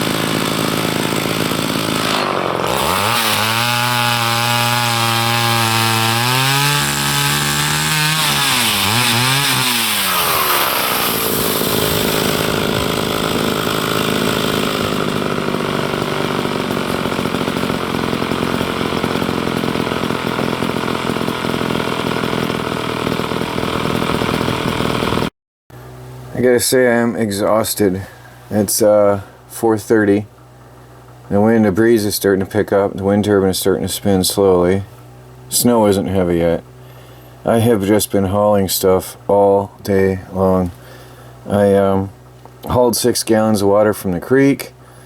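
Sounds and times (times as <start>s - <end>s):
chainsaw cutting wood: 0.0s - 25.3s, 34.2s - 37.6s, 38.3s - 43.5s.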